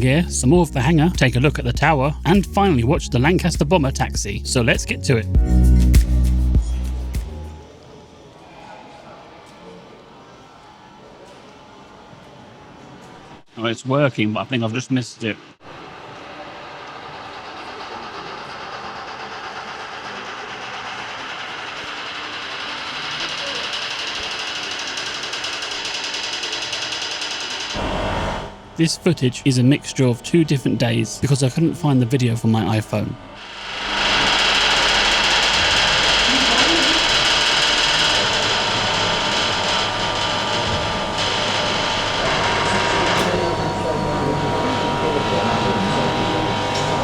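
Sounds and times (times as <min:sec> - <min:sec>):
machine running with rattle: 0:15.7 - 0:47.0
motor whining: 0:21.1 - 0:47.0.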